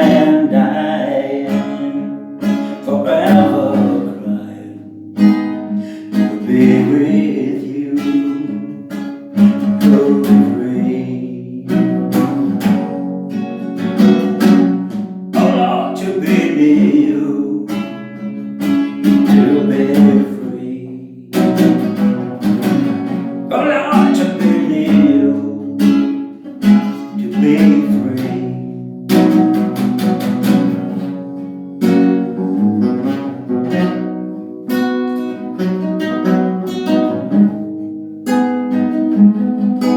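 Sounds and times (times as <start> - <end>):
person singing: 0.0 - 5.0, 5.7 - 13.0, 15.4 - 18.1, 19.2 - 21.8, 23.5 - 26.1, 27.1 - 28.8
acoustic guitar strumming: 0.0 - 39.9.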